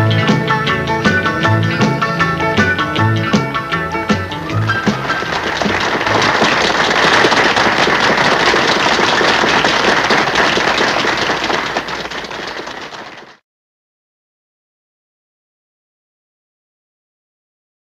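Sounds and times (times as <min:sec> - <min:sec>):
country band playing: 0:00.0 - 0:08.6
audience applause: 0:04.5 - 0:13.4.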